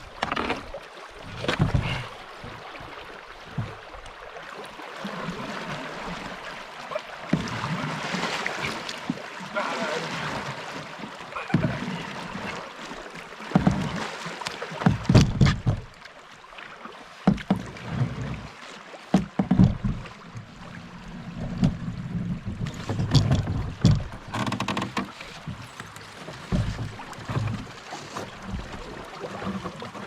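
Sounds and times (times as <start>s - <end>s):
water slapping against boat: 0.0s - 30.0s
knocks on boat: 1.4s - 2.1s, 3.5s - 3.8s, 7.3s - 7.7s, 11.4s - 11.8s, 13.4s - 14.0s, 14.8s - 16.0s, 17.2s - 18.4s, 19.1s - 20.2s, 21.4s - 30.0s.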